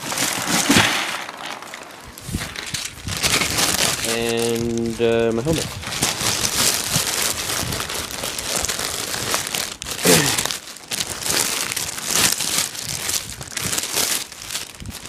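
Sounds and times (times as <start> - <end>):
packaging crinkling: 0.0 - 15.0.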